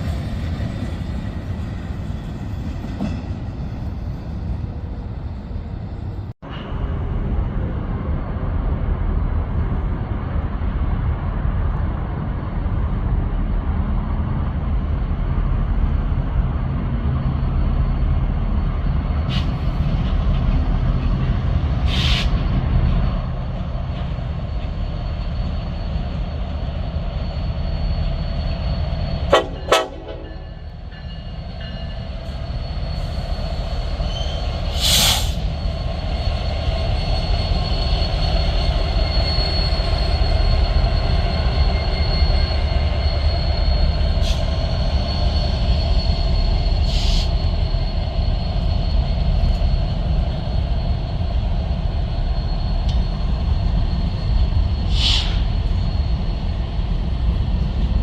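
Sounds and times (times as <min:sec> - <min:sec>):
train wheels rumbling on rails: 0:00.0 - 0:58.0
short high hisses: 0:34.7 - 0:35.4, 0:54.9 - 0:55.5.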